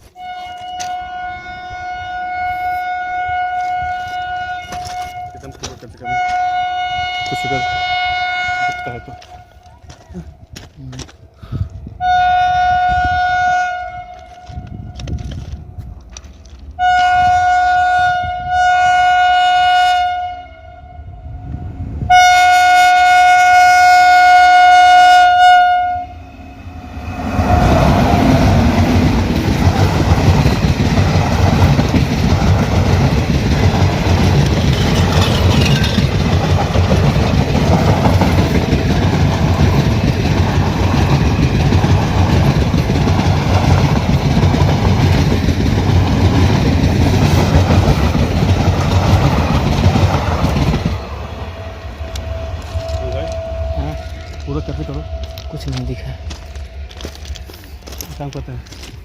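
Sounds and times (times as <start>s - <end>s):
train horn blasts: 0.0s - 9.8s, 12.0s - 15.2s, 16.8s - 29.2s, 51.4s - 57.4s
train wheels rumbling on rails: 0.0s - 18.6s, 21.3s - 59.0s.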